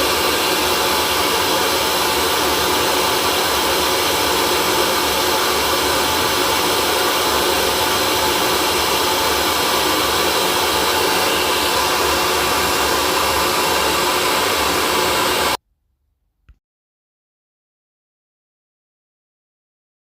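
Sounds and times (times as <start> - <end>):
hair dryer running: 0.0 - 15.6.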